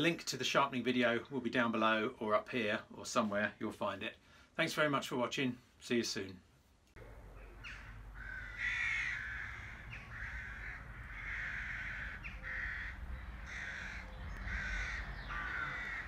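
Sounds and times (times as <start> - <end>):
bird calling: 7.0 - 16.0.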